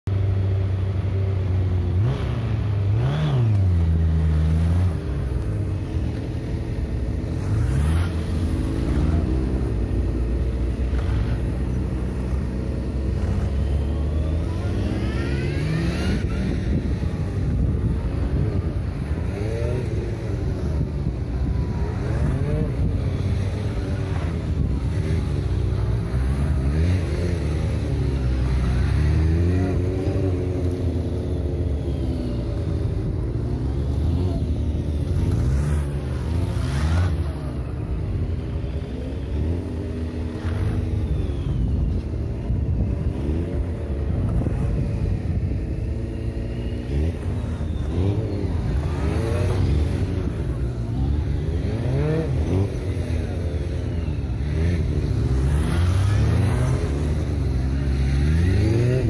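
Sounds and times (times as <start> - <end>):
motorcycle engine revving: 0.1 - 59.0.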